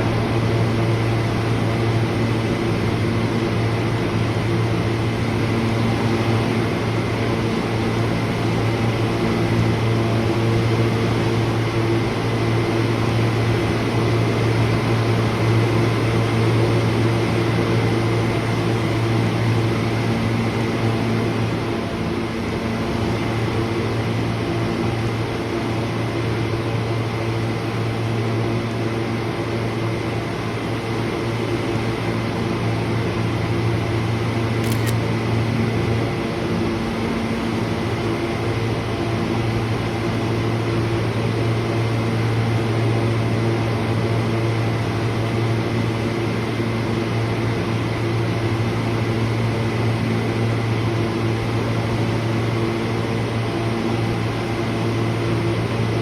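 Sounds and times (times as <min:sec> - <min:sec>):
subway train humming: 0:00.0 - 0:02.2.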